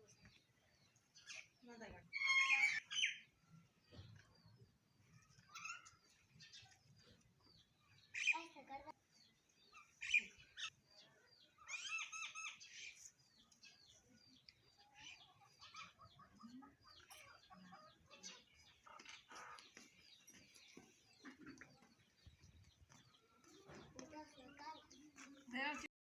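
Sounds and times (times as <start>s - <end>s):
sparrows chirping: 0.0s - 25.9s.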